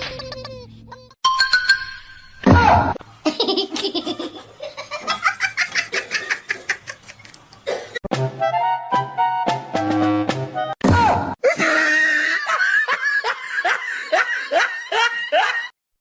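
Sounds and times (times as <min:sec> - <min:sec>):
person laughing hard: 0:11.4 - 0:15.7.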